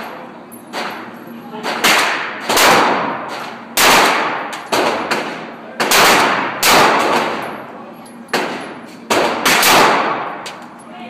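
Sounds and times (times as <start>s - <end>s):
gunshots with reverberation: 1.6s - 7.4s, 8.4s - 10.4s.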